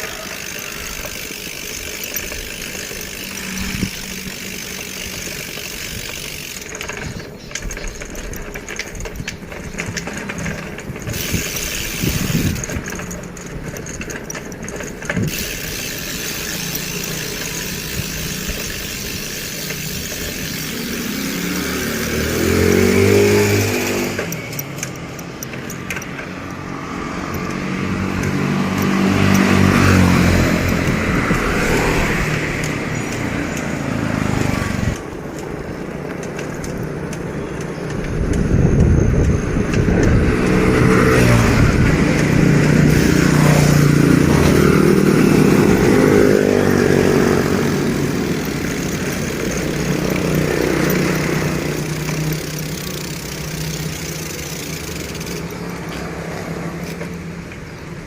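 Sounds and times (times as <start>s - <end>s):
road noise: 0.0s - 58.0s
vehicles passing by: 0.0s - 58.0s
wind noise: 6.8s - 14.2s, 27.1s - 33.4s, 34.0s - 48.0s.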